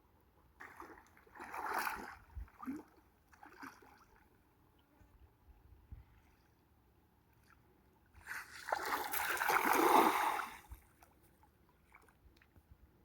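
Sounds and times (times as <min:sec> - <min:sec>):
water splashing: 0:08.4 - 0:10.7.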